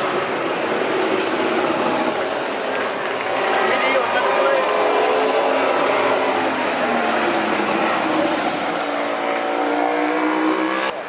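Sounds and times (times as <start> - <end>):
motorcycle engine revving: 4.6 - 11.0.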